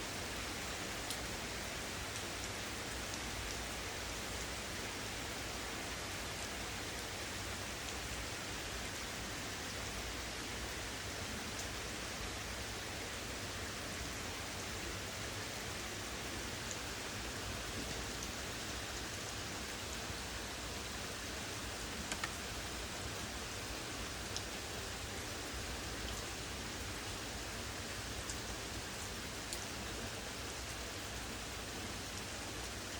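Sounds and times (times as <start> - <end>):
steady rain hissing: 0.0 - 32.9
raindrop ticks: 1.0 - 1.3, 17.7 - 19.1, 22.0 - 22.5, 24.2 - 24.6, 29.5 - 29.8.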